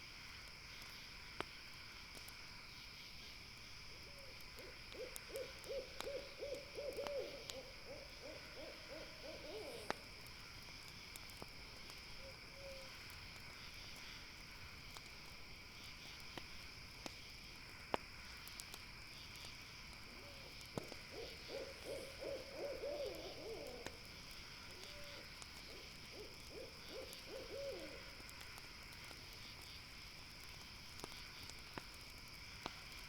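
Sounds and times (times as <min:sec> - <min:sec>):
campfire crackling and popping: 0:00.0 - 0:22.5, 0:23.1 - 0:33.0
insects chirring: 0:00.0 - 0:33.0.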